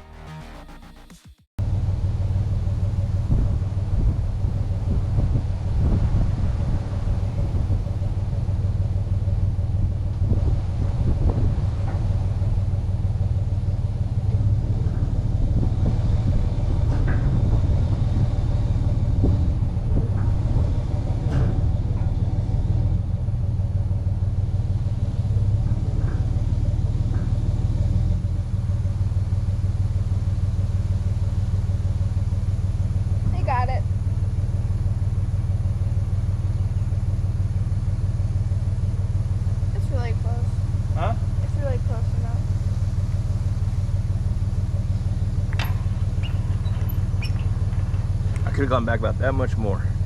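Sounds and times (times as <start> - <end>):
truck engine running: 0.0 - 50.0
light clicks and rattles: 43.8 - 50.0.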